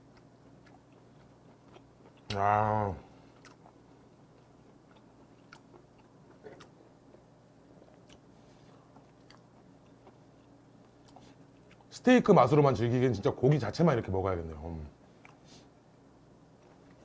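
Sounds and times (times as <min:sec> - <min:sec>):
faint chewing: 0:00.0 - 0:02.4, 0:03.0 - 0:11.9, 0:15.1 - 0:15.7
low steady hum: 0:00.0 - 0:17.0.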